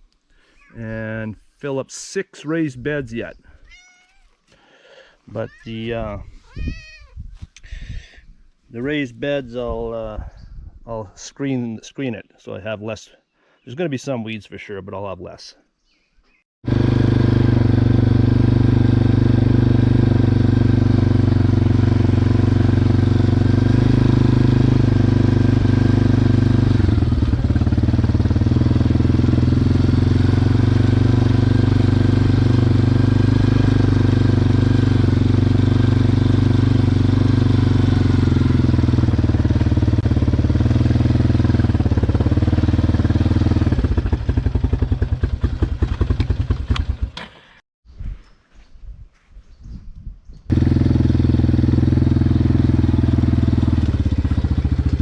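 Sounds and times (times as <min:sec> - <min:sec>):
quad engine running: 0:16.7 - 0:47.4, 0:50.5 - 0:55.0.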